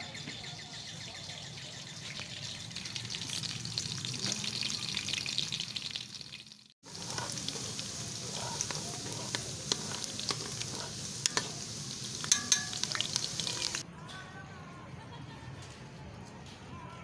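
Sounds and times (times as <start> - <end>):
oil sizzling and crackling: 1.9 - 13.8.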